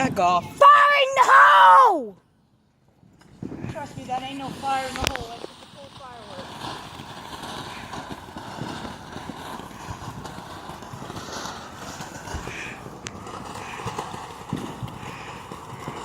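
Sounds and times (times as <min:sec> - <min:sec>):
crackles and pops: 0:02.8 - 0:16.0
ground firework hissing: 0:03.0 - 0:16.0
sharp crack: 0:03.2 - 0:16.0.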